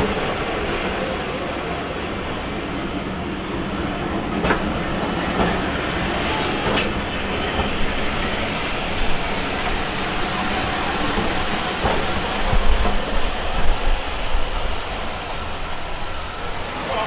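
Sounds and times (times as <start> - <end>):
train coaches rumbling: 0.0 - 17.0.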